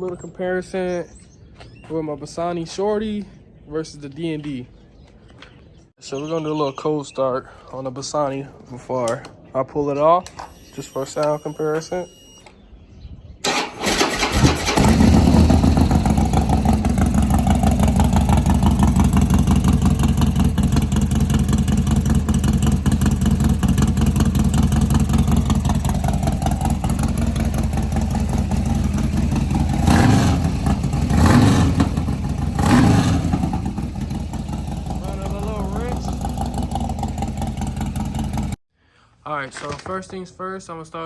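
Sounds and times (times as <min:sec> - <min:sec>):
motorcycle starter cranking: 0:13.4 - 0:38.5
motorcycle throttle blips: 0:13.4 - 0:38.6
motorcycle engine idling: 0:13.5 - 0:38.6.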